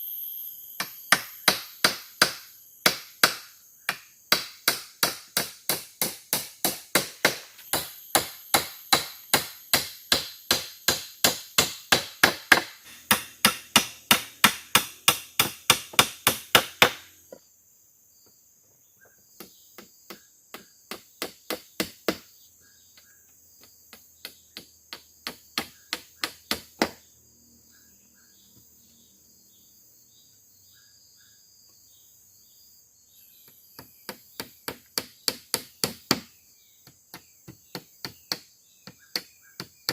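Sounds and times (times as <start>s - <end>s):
forest insects buzzing: 0.0s - 39.9s
chopping strikes on wood: 0.8s - 17.2s, 19.4s - 22.3s, 23.0s - 27.0s, 33.4s - 39.9s.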